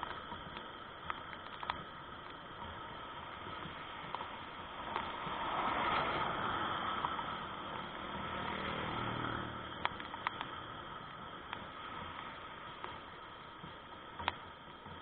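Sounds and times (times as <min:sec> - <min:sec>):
background hiss: 0:00.0 - 0:15.0
motor vehicle passing: 0:04.9 - 0:09.8.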